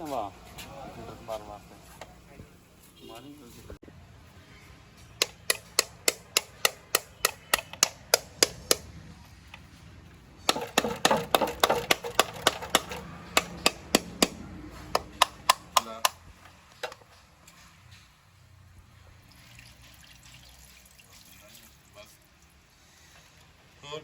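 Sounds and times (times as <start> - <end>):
sharp knocks like hammer blows: 5.2 - 8.9, 10.4 - 16.2.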